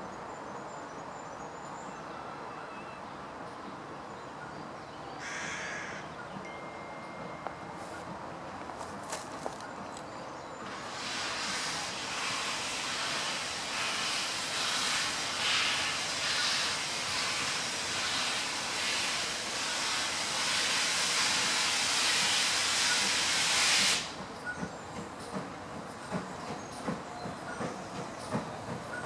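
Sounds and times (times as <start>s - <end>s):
steam locomotive venting steam: 10.6s - 29.0s.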